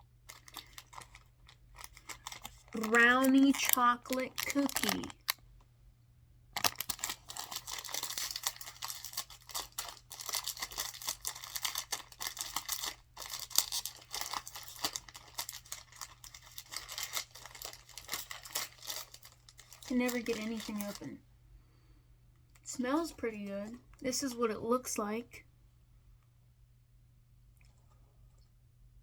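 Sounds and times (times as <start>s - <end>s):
plastic wrapper crinkling: 0.2s - 5.4s, 6.5s - 21.2s.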